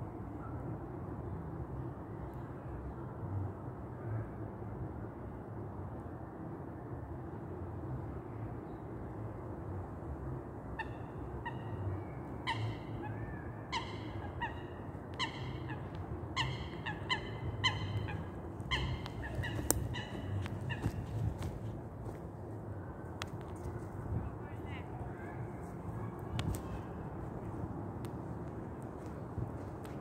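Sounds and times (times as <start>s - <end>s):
low outdoor rumble: 0.0s - 30.0s
birds honking calls: 12.4s - 21.4s.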